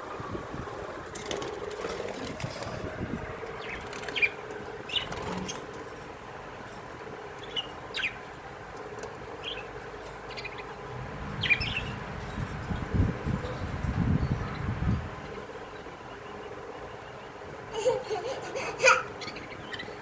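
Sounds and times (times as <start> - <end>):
budgerigars chirping: 3.5 - 5.7, 7.4 - 8.3, 9.4 - 12.8, 19.2 - 20.0.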